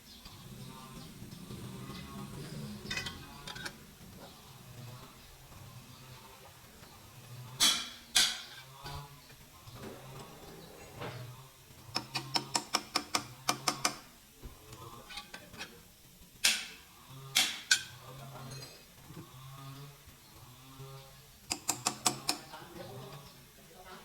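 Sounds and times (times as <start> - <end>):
ratchet-like clicks: 11.8 - 14.1, 20.8 - 23.2.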